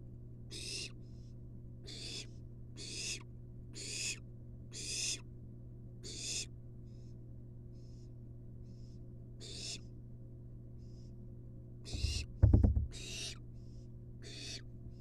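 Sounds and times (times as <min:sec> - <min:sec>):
low electrical hum: 0:00.0 - 0:15.0
owl nestling hissing calls: 0:00.5 - 0:00.9, 0:01.9 - 0:03.2, 0:03.8 - 0:04.2, 0:04.8 - 0:05.2, 0:06.1 - 0:06.5, 0:09.4 - 0:09.8, 0:11.9 - 0:12.3.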